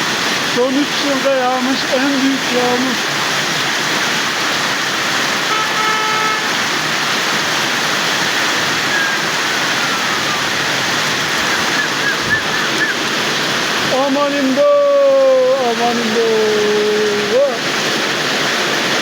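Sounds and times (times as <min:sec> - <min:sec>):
floodwater rushing: 0:00.0 - 0:19.0
torrential rain pouring: 0:00.0 - 0:19.0
short horn-like tone: 0:05.5 - 0:06.6.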